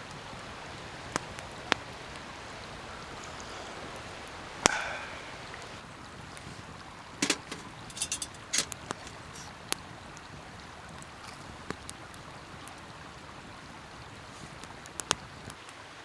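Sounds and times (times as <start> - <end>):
campfire crackling and popping: 0.1 - 15.8
steady fire hiss: 0.9 - 12.6.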